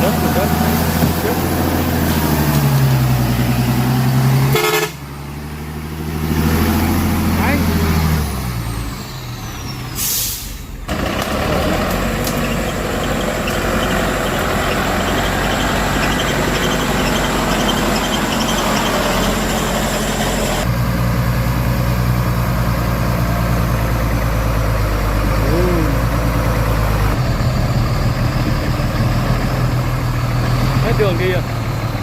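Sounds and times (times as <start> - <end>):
truck diesel engine running: 0.0 - 32.0
air brakes hissing: 9.1 - 10.8.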